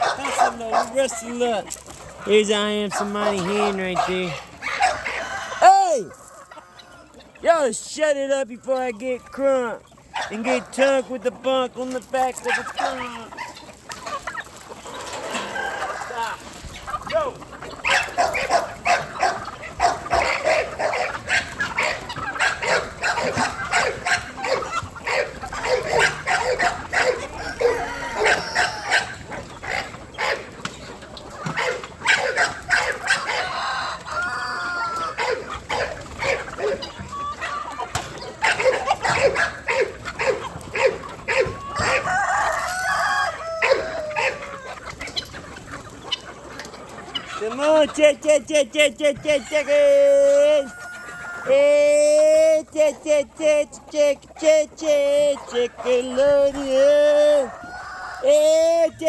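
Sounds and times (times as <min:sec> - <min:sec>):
dog barking: 0:00.0 - 0:01.0, 0:02.9 - 0:05.0, 0:10.1 - 0:10.7, 0:12.5 - 0:13.6, 0:17.8 - 0:29.1, 0:31.6 - 0:33.4, 0:35.2 - 0:36.8, 0:38.4 - 0:42.0, 0:43.6 - 0:44.4
chickens clucking: 0:00.0 - 0:59.0
rooster crowing: 0:04.8 - 0:06.0, 0:27.3 - 0:29.1, 0:41.7 - 0:44.6.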